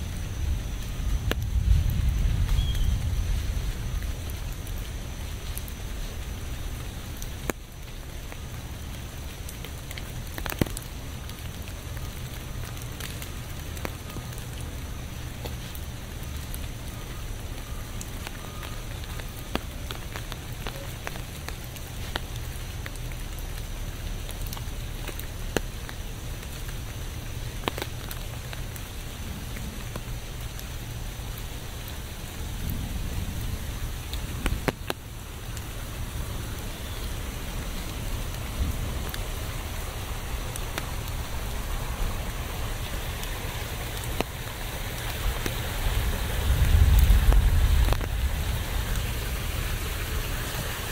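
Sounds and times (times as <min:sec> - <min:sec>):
low rumble: 0:00.0 - 0:06.8, 0:45.2 - 0:50.9
steady rain falling: 0:00.0 - 0:50.9.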